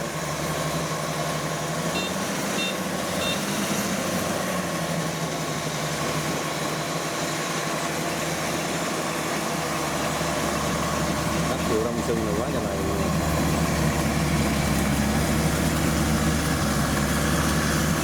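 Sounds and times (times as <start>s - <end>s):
farm machine engine humming: 0.0s - 18.0s
short high-pitched beeps: 2.0s - 3.5s.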